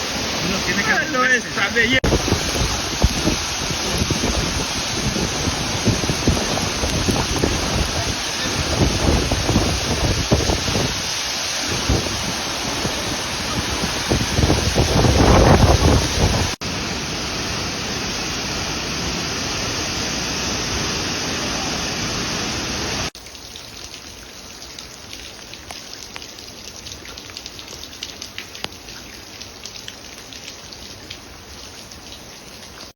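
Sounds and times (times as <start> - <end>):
waterfall rushing: 0.0 - 23.2
wind rumble on microphone: 2.0 - 11.1, 11.7 - 16.6.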